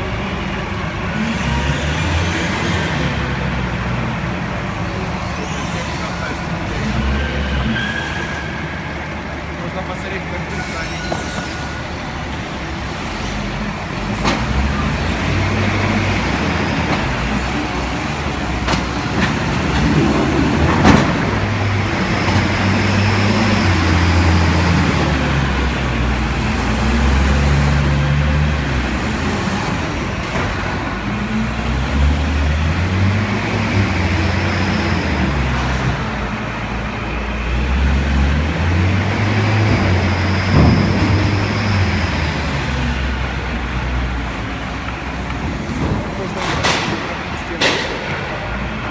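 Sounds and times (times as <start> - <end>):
forklift engine revving: 11.9 - 48.9
sharp knocks: 45.7 - 48.2.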